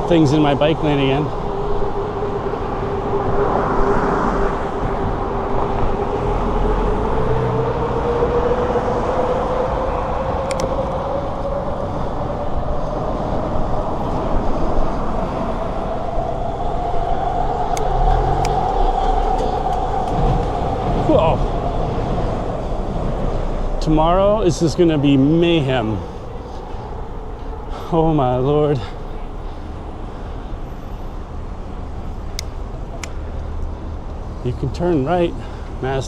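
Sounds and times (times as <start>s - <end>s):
bicycle road noise: 0.0s - 36.0s
passing traffic: 0.0s - 36.0s
wind noise: 0.0s - 36.0s
steady hum rising in pitch: 2.6s - 29.9s
sharp clicks: 10.4s - 10.8s, 17.7s - 18.8s.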